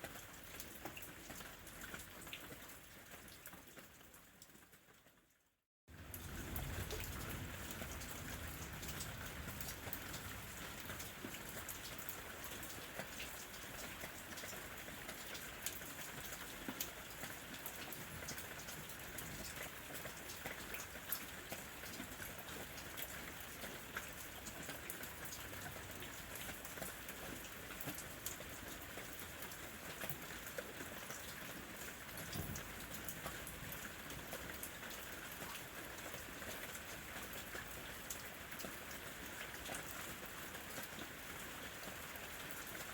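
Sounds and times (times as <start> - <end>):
rain falling: 0.0 - 5.2, 5.9 - 42.9
rain drop taps: 32.0 - 34.6.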